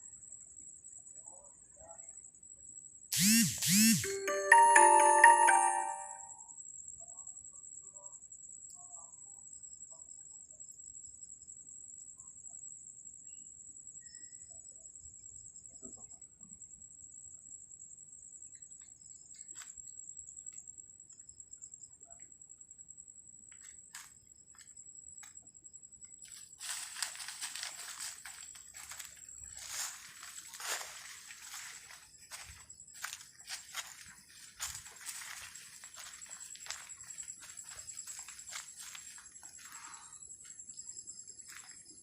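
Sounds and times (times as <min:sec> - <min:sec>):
cricket trilling: 0:18.1 - 0:42.0
pulsed insect trills: 0:24.2 - 0:42.0.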